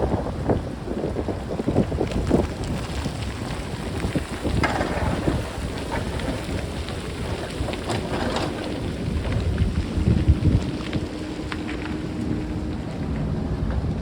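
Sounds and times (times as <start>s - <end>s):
wind buffeting microphone: 0.0s - 14.0s
rocks and stones clattering: 2.0s - 12.6s.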